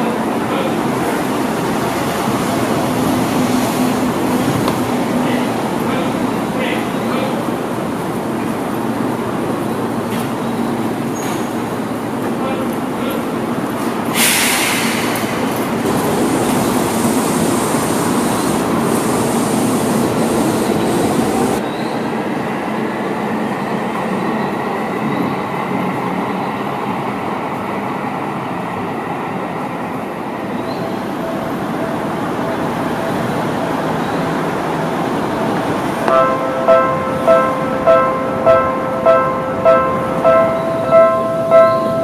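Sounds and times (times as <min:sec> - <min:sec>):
train running noise: 0:00.0 - 0:42.0
loud hiss: 0:14.1 - 0:21.6.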